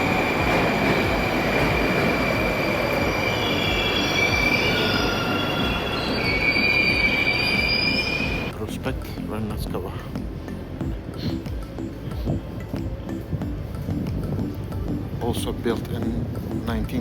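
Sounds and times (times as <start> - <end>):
metallic wheel squeal: 0.0 - 8.5
constant high tone: 0.0 - 8.6
train wheels on rail: 0.0 - 8.6.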